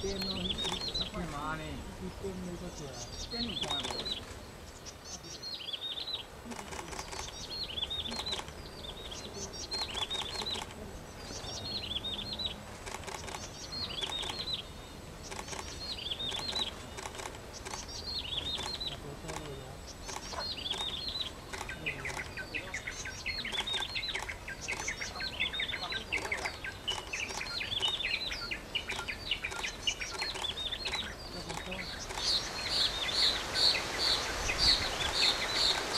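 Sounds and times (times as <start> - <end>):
birds chattering: 0.0 - 35.9
scattered clicks: 3.6 - 4.1, 12.8 - 14.5, 28.9 - 32.4.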